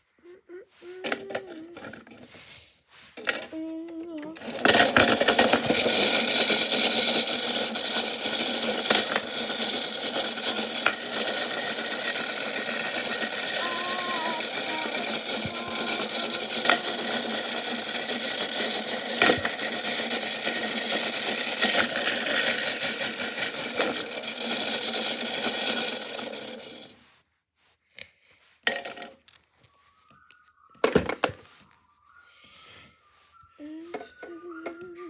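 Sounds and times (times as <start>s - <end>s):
washing machine running: 7.2s - 22.3s.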